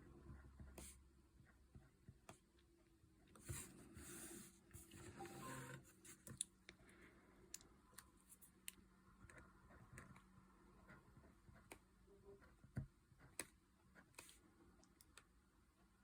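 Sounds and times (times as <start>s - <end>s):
pen scratching on paper: 3.4s - 4.6s.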